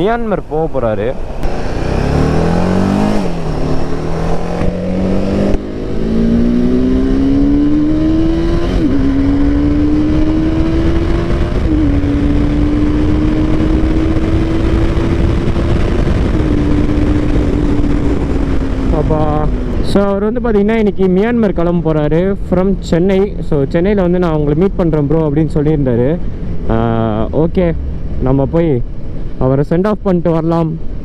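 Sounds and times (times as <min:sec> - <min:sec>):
wind and road noise: 0:00.0 - 0:31.0
motorcycle engine accelerating: 0:01.1 - 0:24.4.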